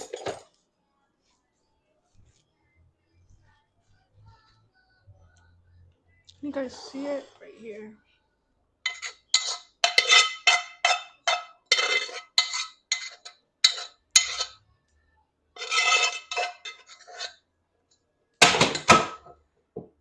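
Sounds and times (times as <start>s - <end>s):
metal spoon scraping cooking pot: 8.9s - 14.6s, 15.6s - 17.4s.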